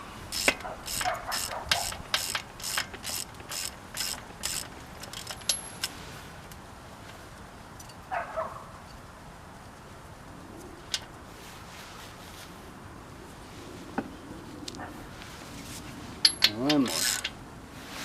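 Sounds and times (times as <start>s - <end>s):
ratchet wrench clicking: 0.3s - 5.9s, 16.2s - 17.4s.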